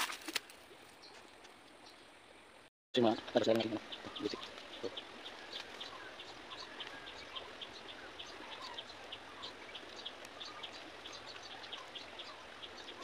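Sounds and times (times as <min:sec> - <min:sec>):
small birds chirping: 0:00.9 - 0:13.0.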